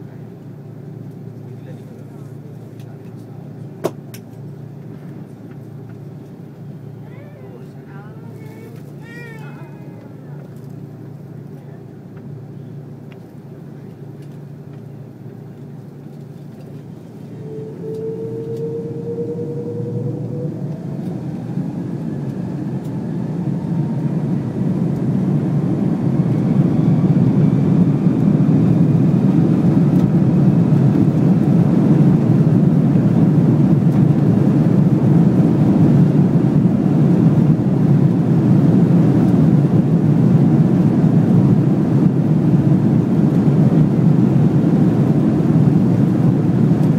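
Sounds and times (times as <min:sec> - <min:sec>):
jet engines spooling up: 0:16.6 - 0:46.9
rising whining tones: 0:17.1 - 0:28.8.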